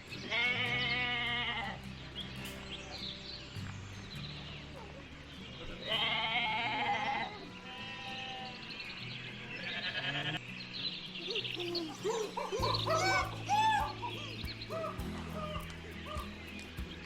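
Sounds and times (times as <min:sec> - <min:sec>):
animal bleating: 0:00.2 - 0:01.9, 0:05.6 - 0:10.4
background music with bass: 0:12.5 - 0:17.0.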